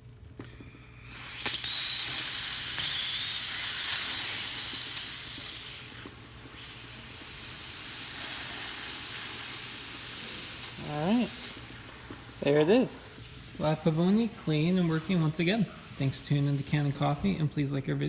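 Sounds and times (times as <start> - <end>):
steam wand hissing: 0.5 - 18.0.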